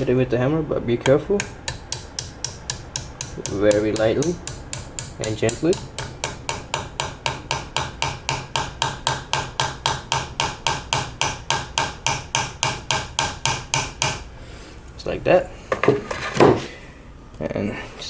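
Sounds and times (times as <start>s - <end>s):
rapid hammer taps on metal: 1.0s - 14.2s.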